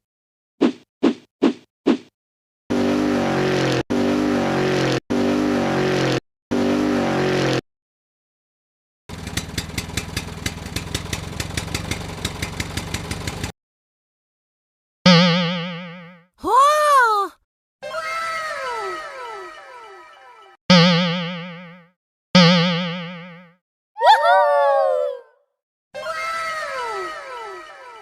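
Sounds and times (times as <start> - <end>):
rattling engine run: 2.7 - 7.6, 9.1 - 13.5
short engine bursts: 2.7 - 7.6, 9.1 - 13.5.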